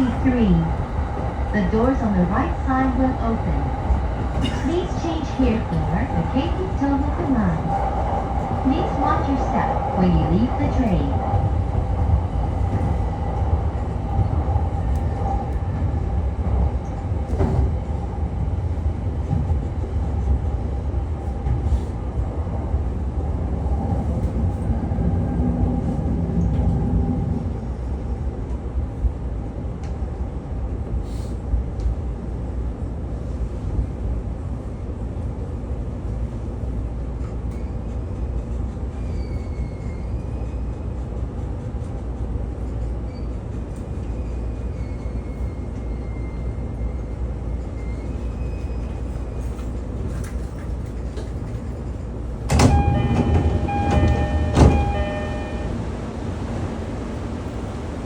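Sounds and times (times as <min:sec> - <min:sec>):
train rumbling along rails: 0:00.0 - 0:58.0
faint high squeals: 0:39.0 - 0:40.7, 0:44.1 - 0:49.2.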